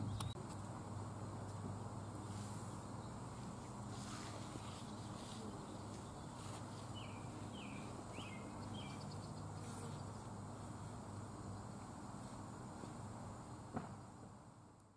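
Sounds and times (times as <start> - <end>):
small bird chirping: 0.0 - 0.4, 4.7 - 10.2
faint background noise: 0.0 - 14.9
steady low hum: 0.0 - 14.9.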